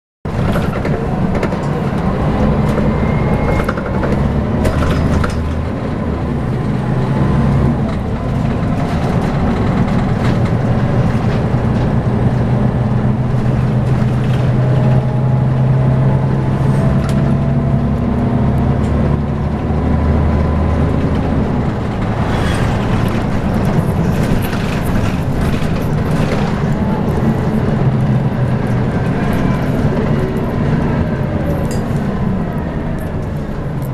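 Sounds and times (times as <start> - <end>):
bus engine running: 0.3 - 33.9
rattles and clicks: 3.5 - 5.8, 7.8 - 15.2, 20.9 - 33.9.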